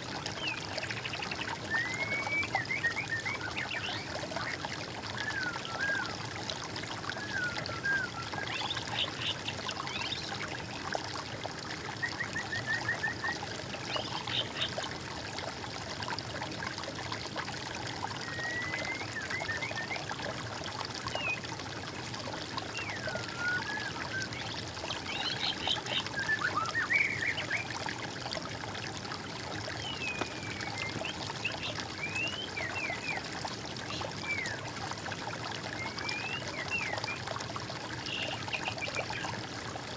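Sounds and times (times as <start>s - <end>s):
running water trickling: 0.0s - 39.9s
songbirds singing: 7.1s - 10.9s, 12.0s - 14.9s, 22.6s - 27.8s, 29.6s - 34.7s, 35.6s - 37.2s, 37.9s - 39.4s.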